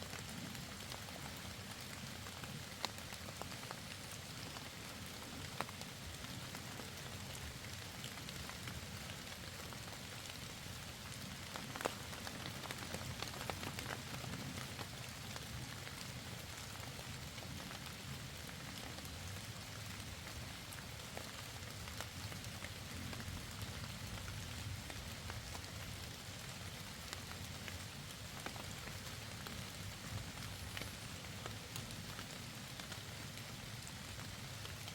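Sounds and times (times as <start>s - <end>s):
rain falling: 0.0s - 34.9s
sharp raindrop ticks: 11.0s - 17.9s, 18.7s - 34.9s.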